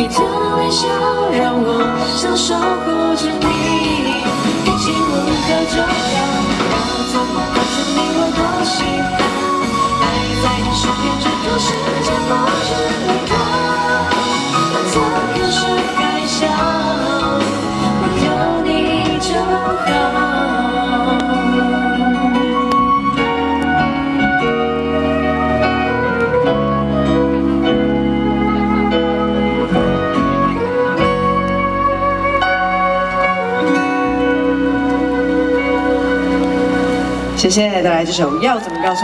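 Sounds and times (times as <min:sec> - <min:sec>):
woman singing: 0:00.0 - 0:24.0
drums: 0:00.0 - 0:39.0
guitar: 0:00.0 - 0:39.0.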